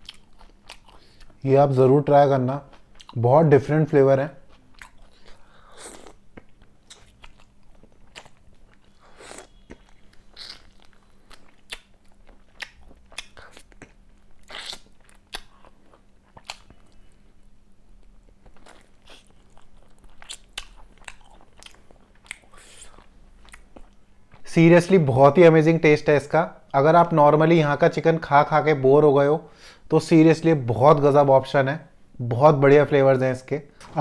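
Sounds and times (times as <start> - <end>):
person chewing food: 0.0 - 1.4, 2.7 - 3.2, 4.4 - 24.5.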